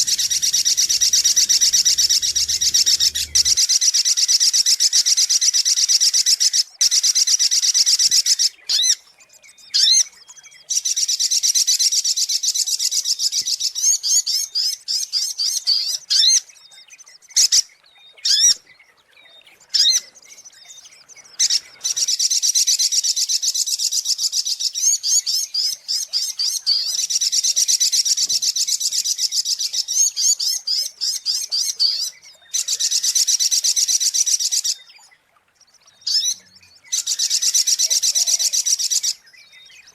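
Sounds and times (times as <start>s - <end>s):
bird high-pitched chattering: 0.0s - 3.6s.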